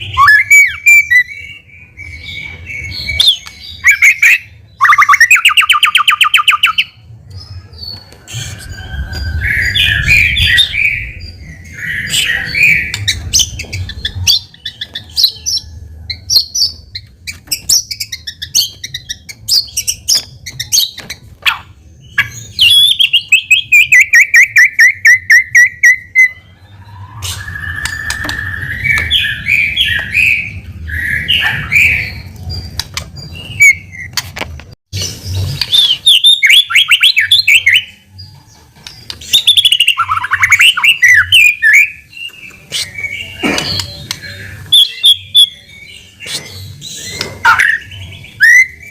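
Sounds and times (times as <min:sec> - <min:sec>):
bird singing whistled phrases: 0:00.0 - 0:06.9, 0:35.6 - 0:38.0.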